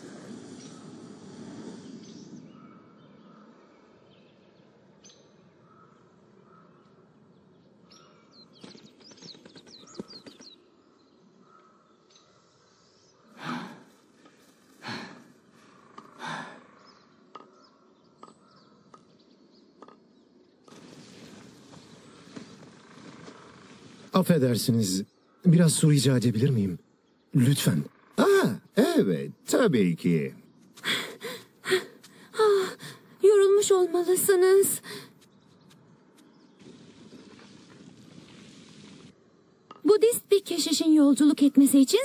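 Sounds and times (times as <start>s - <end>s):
soft breathy hiss: 0.0s - 2.6s
small birds chirping: 0.0s - 42.0s.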